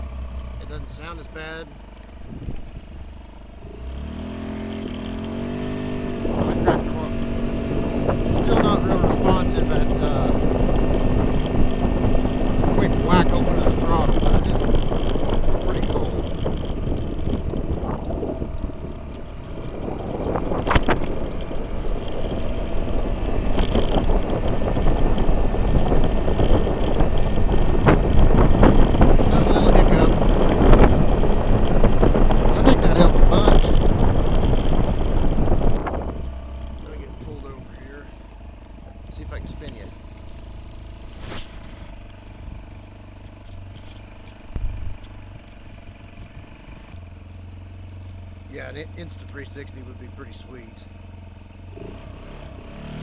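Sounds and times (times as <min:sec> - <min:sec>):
scooter engine under throttle: 0:00.0 - 0:53.0
wind rushing over microphone: 0:02.2 - 0:03.0, 0:05.4 - 0:37.7
scraping swish: 0:41.0 - 0:42.7.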